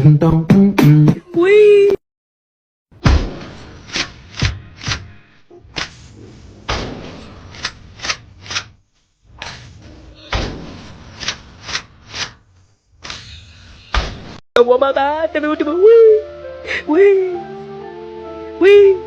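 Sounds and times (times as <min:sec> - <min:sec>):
repeating thuds: 0:02.9 - 0:14.4.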